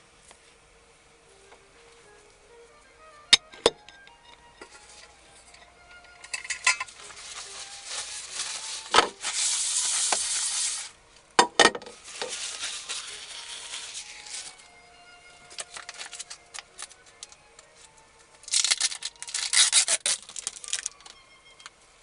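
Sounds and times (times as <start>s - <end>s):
pans and utensils clinking: 6.2s - 7.3s
loud hiss: 7.8s - 11.0s.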